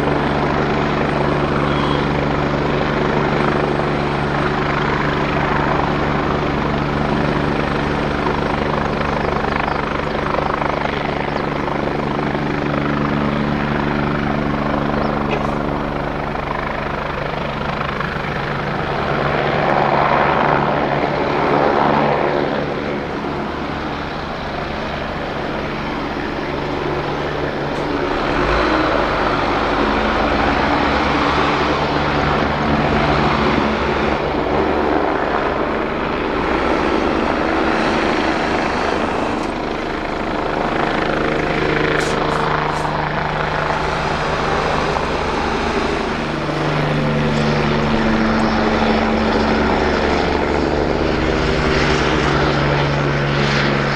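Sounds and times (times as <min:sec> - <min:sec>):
helicopter engine hum: 0:00.0 - 0:53.9
helicopter rotor noise: 0:00.0 - 0:53.9.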